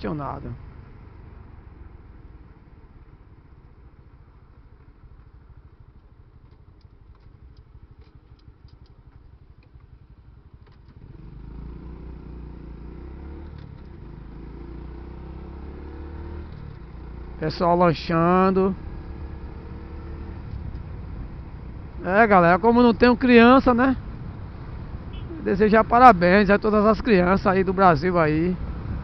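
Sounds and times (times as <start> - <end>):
motorcycle engine running: 0.0 - 29.0
faint clicks: 5.9 - 9.9.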